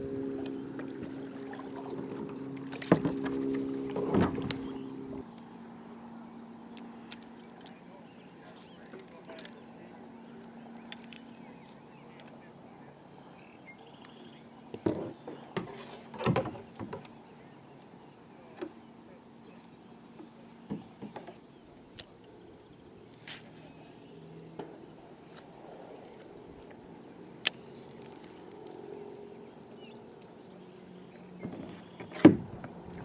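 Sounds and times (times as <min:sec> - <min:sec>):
fishing gear knocks in kayak: 0:00.3 - 0:05.0.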